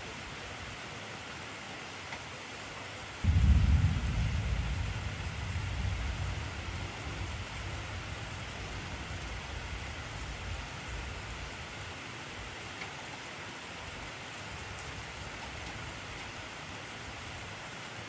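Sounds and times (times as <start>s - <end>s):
heavy rain falling: 0.1s - 18.0s
thunder rolling: 3.2s - 11.3s.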